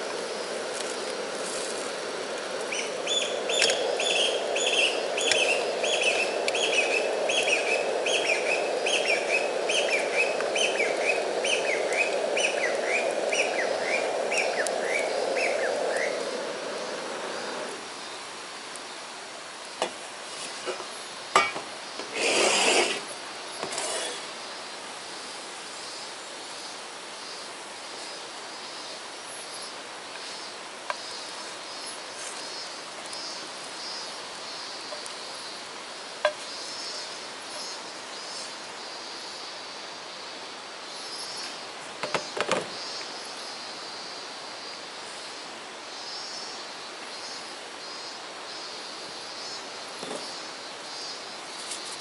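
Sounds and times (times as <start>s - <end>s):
faint steady hiss: 0.0s - 52.0s
scraping rustle: 0.7s - 2.0s, 22.0s - 24.3s.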